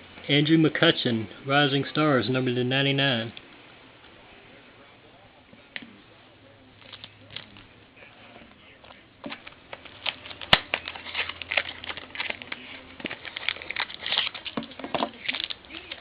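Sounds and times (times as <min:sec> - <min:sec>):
light clicks of packaging: 0:06.8 - 0:07.7, 0:08.8 - 0:16.0
papery rustles of trading cards: 0:06.8 - 0:16.0.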